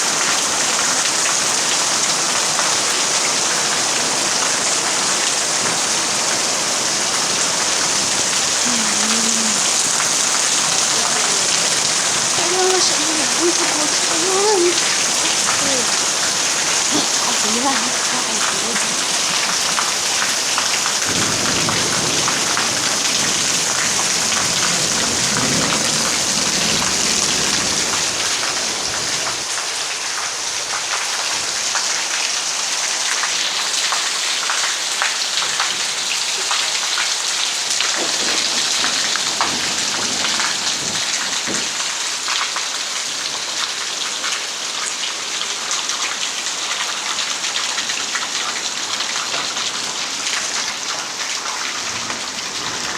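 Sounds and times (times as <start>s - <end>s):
raindrops pattering: 0.0s - 52.9s
steady rain falling: 0.0s - 52.9s.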